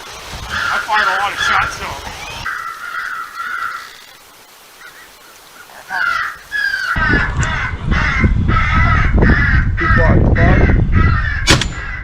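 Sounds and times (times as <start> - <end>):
wind rumble on microphone: 0.2 - 0.7, 7.0 - 12.0
crows cawing: 0.5 - 12.0.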